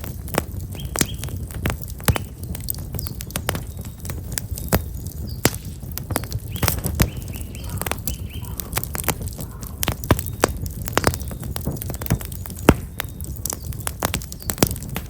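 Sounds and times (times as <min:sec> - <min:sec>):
firewood crackling and popping: 0:00.0 - 0:15.0
low fire rumble: 0:00.0 - 0:15.0
small birds chirping: 0:00.0 - 0:15.0.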